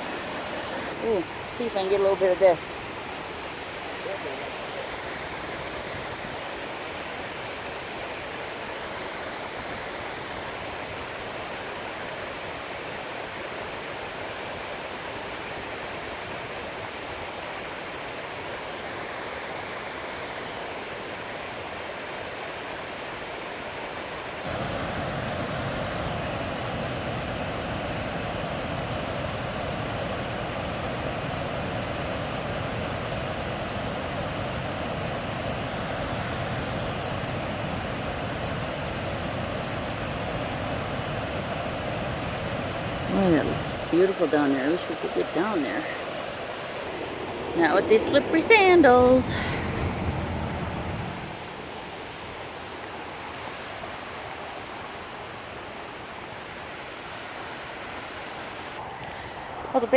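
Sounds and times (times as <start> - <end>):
waterfall rushing: 0.0 - 12.3, 24.4 - 59.9.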